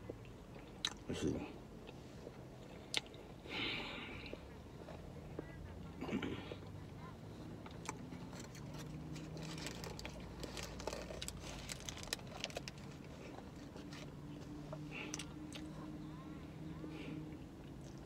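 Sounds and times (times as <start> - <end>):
moist chewing: 6.6 - 15.9
paper wrapper crackling: 9.2 - 13.0.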